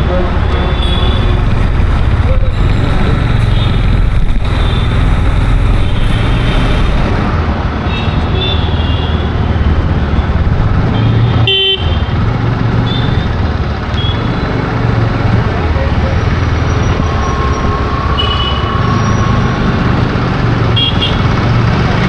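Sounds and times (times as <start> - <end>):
road traffic rumble: 0.0 - 22.0
car horn toots: 20.8 - 21.3.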